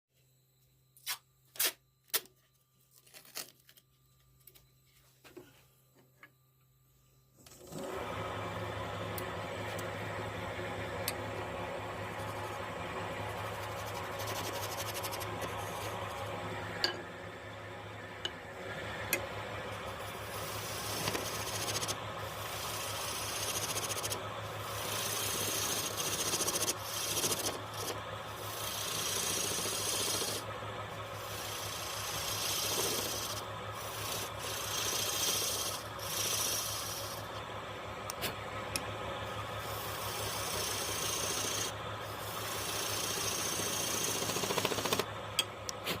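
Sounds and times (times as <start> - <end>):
low machine hum: 0.2 - 46.0
wood being sanded: 13.3 - 15.9, 19.9 - 30.4, 31.2 - 37.2, 39.7 - 45.0.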